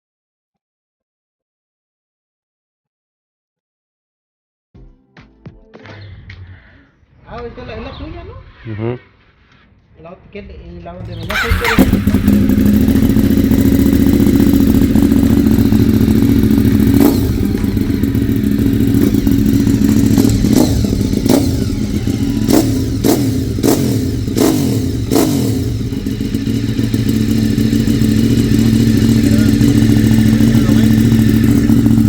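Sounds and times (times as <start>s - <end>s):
motorcycle engine idling: 11.0s - 32.0s
short sharp exhaust cracks: 11.0s - 32.0s.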